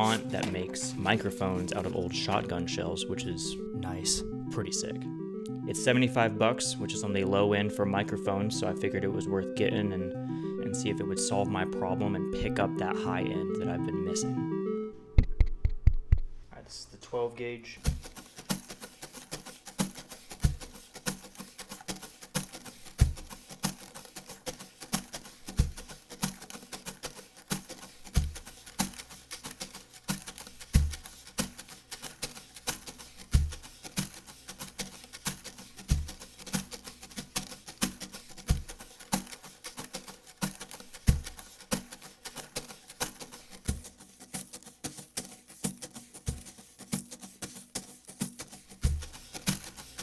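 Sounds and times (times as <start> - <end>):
brush strokes on cajon: 0.0 - 2.5, 17.8 - 50.0
cajon bass hits: 15.1 - 16.4.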